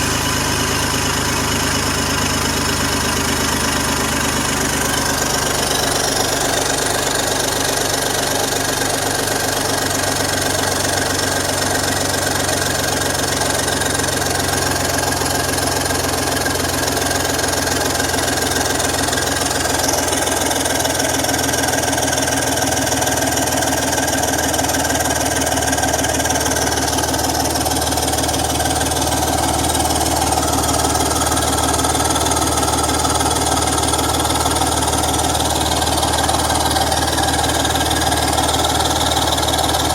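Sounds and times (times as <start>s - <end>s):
car engine running: 0.0s - 39.9s
exhaust leak ticking: 0.0s - 39.9s.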